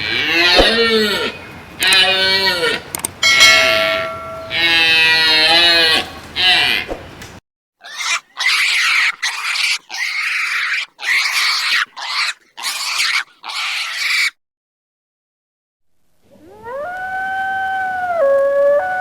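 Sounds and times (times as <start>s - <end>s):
animal making harsh hissy calls: 7.8s - 14.3s.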